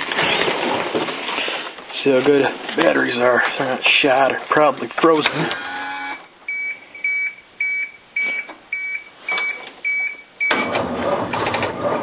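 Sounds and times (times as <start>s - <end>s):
short high warning beeps: 5.7s - 10.8s
diesel engine starter cranking: 10.4s - 12.0s.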